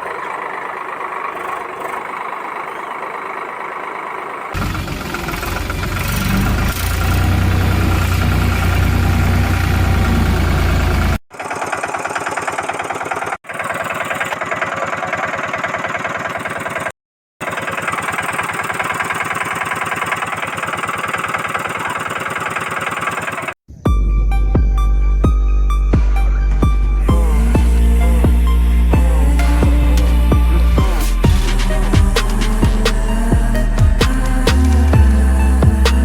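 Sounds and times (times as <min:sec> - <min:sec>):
engine running with low rumble: 0:00.0 - 0:11.2, 0:23.9 - 0:36.0.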